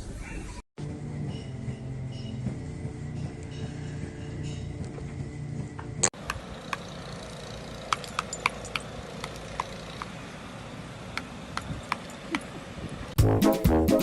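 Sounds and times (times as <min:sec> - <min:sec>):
short music: 0:13.2 - 0:14.0.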